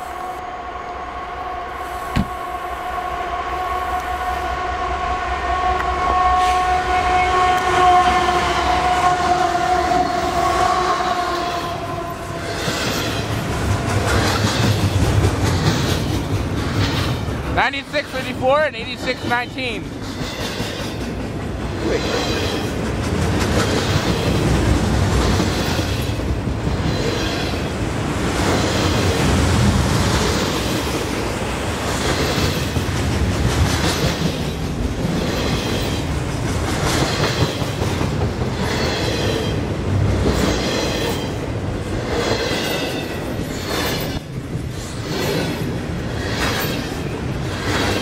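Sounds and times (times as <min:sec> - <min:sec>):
freight train wheels clacking: 0:12.3 - 0:27.7, 0:30.0 - 0:48.0.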